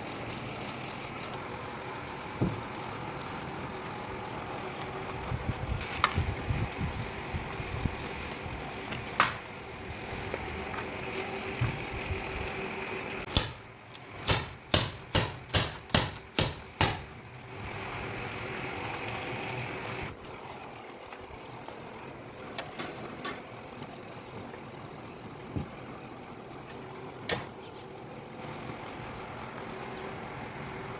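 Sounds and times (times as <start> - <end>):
sharp metal taps: 13.3 - 17.2.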